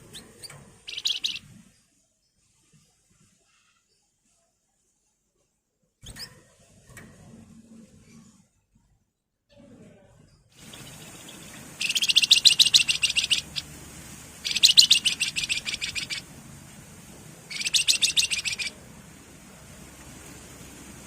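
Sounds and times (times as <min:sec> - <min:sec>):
bird singing buzzy trills: 0:00.0 - 0:01.6, 0:10.6 - 0:16.3, 0:17.5 - 0:18.8.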